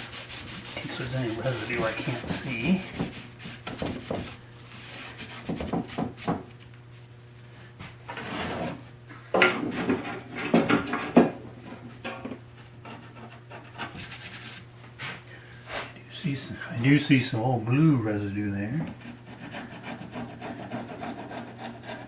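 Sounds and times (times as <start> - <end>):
rag wiping wood: 0.0 - 6.5, 13.9 - 16.0
low steady hum: 0.0 - 22.0.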